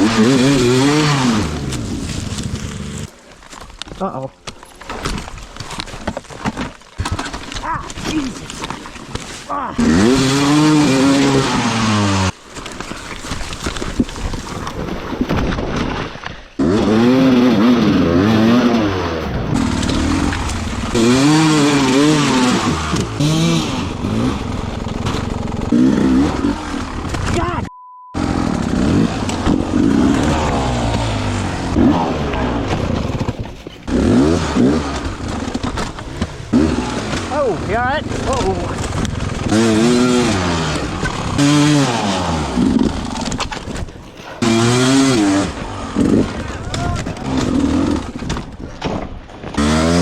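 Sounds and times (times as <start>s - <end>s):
dirt bike engine revving: 0.0s - 3.1s, 9.8s - 12.4s, 16.6s - 27.6s, 28.2s - 33.3s, 33.9s - 48.2s, 49.6s - 50.0s
rough noise: 9.8s - 27.6s, 28.2s - 48.4s.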